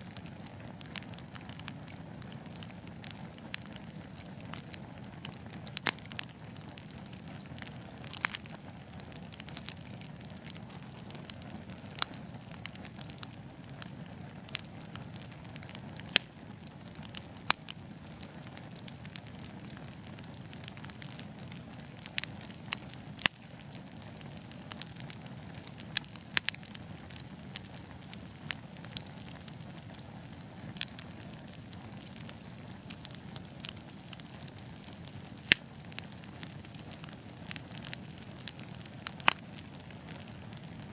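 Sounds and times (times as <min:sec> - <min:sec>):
fire crackles and pops: 0:00.0 - 0:40.9
wood fire hissing: 0:00.0 - 0:40.9.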